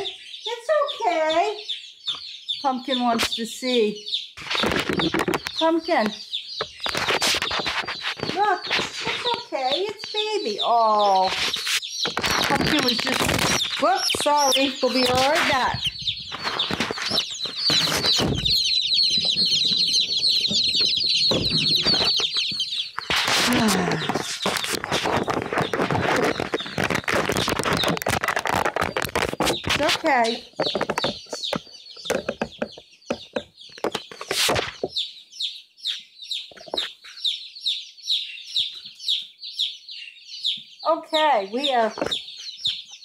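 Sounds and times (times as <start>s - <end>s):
chicks peeping: 0.0s - 43.0s
brief rustle: 6.8s - 9.4s
knocks: 30.5s - 34.2s.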